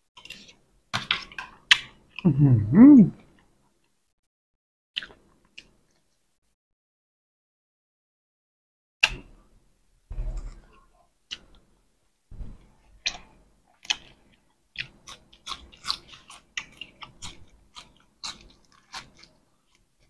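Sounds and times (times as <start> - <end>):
chewing crunchy leafy greens: 13.8 - 20.0.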